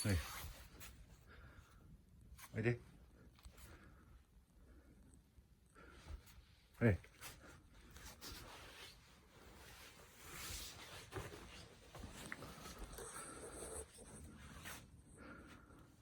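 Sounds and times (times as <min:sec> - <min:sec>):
faint rustling and scuffing: 0:07.1 - 0:13.0.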